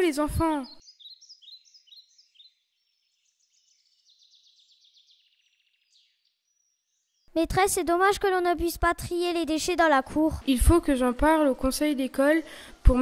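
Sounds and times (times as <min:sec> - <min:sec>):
songbird chirps and trills: 0:00.0 - 0:13.0.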